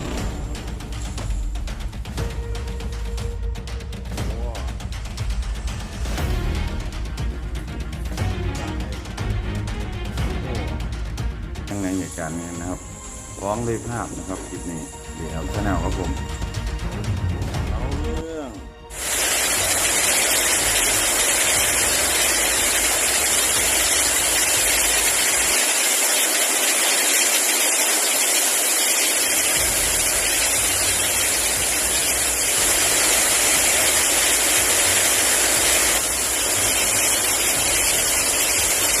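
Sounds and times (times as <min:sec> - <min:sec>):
heavy rain: 0:00.0 - 0:01.6, 0:18.9 - 0:39.0.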